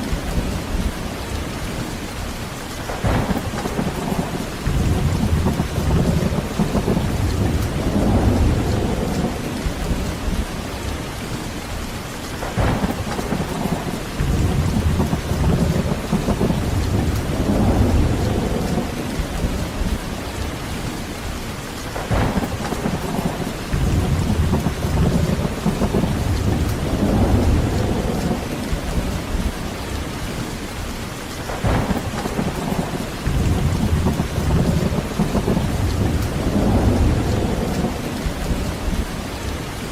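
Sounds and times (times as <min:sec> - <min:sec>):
heavy rain: 0:00.0 - 0:39.9
sharp thunder cracks: 0:02.9 - 0:10.0, 0:12.4 - 0:20.0, 0:22.0 - 0:29.6, 0:31.5 - 0:39.0
rolling thunder: 0:02.9 - 0:10.7, 0:12.4 - 0:21.0, 0:21.9 - 0:30.5, 0:31.5 - 0:39.5.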